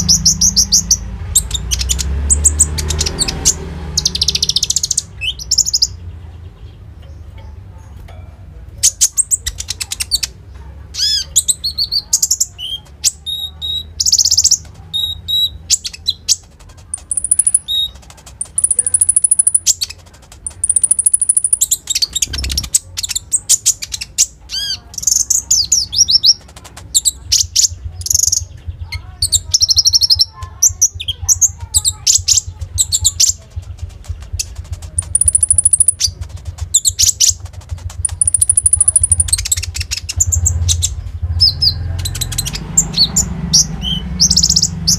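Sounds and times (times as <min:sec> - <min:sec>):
songbird chirping and trilling: 0:00.0 - 0:44.9.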